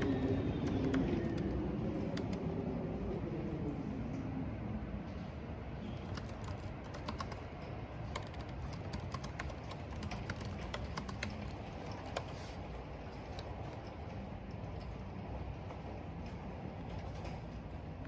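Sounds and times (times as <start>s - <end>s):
keyboard typing clicks: 0.0s - 2.4s, 6.0s - 7.4s, 8.1s - 12.4s
wind: 0.0s - 18.0s.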